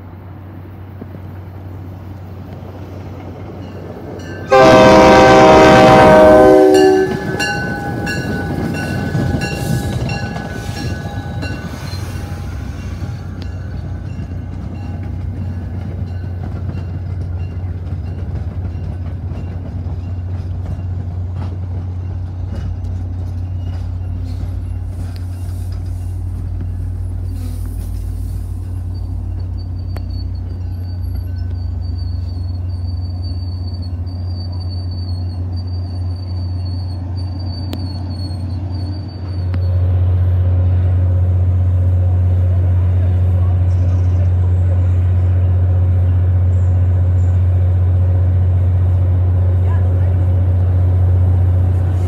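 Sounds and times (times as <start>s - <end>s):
train rumble: 0.0s - 52.0s
high wheel squeal: 6.4s - 13.6s, 22.6s - 40.0s
wheels clicking over rail joints: 7.0s - 32.9s.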